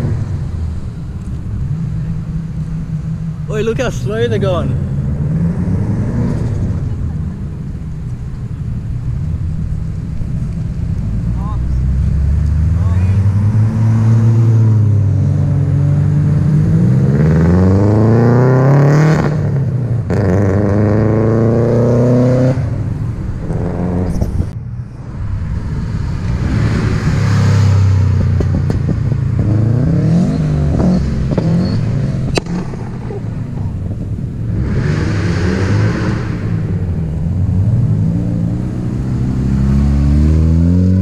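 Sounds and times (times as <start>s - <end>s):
car engines accelerating hard: 0.0s - 41.0s.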